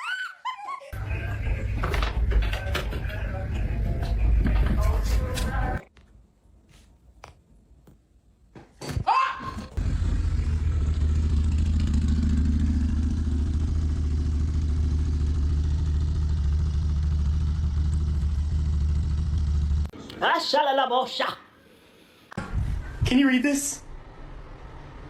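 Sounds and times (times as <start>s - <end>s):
low engine rumble: 1.0s - 5.8s, 9.8s - 19.9s.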